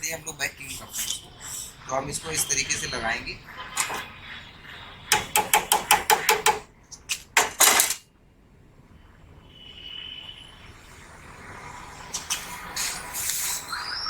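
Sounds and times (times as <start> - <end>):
ringing metallic taps: 5.1 - 6.6.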